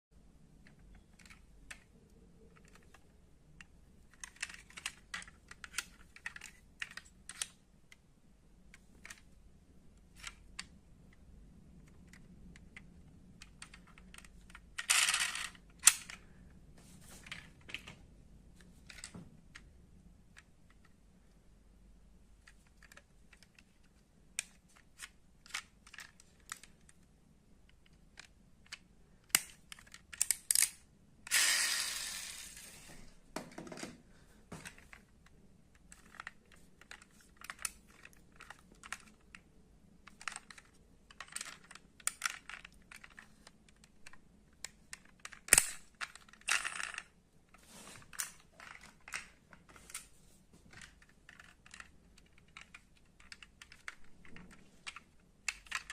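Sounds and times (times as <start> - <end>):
metal toy cars clicking: 27.7 - 32.7, 40.0 - 47.1, 50.8 - 55.9.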